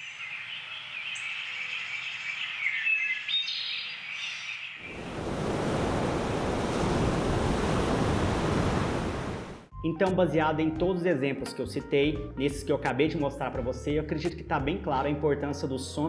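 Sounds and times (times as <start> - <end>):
steady rushing noise: 4.8 - 9.7.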